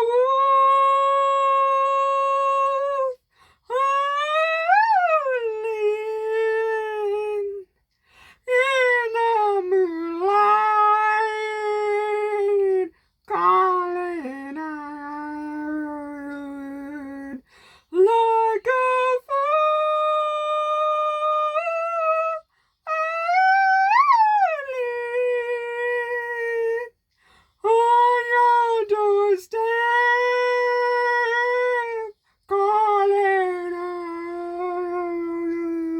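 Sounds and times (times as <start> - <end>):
singer breathing: 8.0 - 8.4, 17.5 - 17.9, 27.1 - 27.6.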